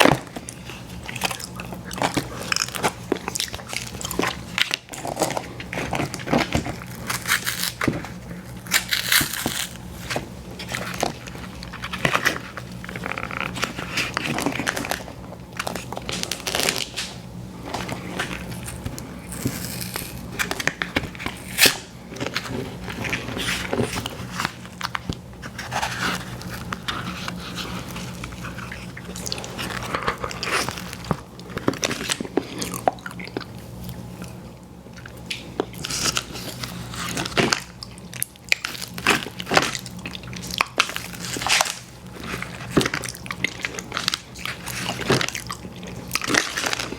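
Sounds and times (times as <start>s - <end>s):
chewing with wet mouth sounds: 0.0s - 7.7s, 26.3s - 46.9s
biting crunchy pie crust: 0.0s - 46.9s.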